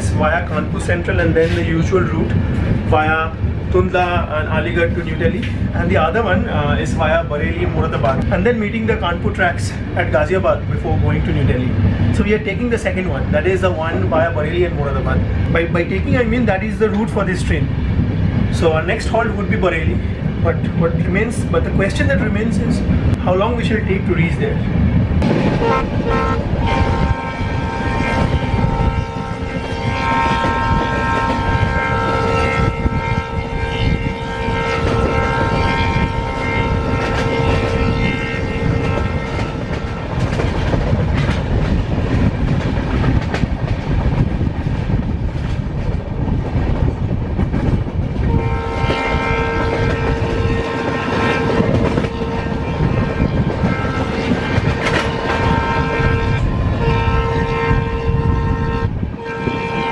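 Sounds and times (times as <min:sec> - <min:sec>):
train rumbling on rails: 0:00.0 - 0:59.9
train horn blast: 0:25.2 - 0:40.2, 0:48.2 - 0:59.9
wheels clacking over rail joints: 0:38.8 - 0:56.0.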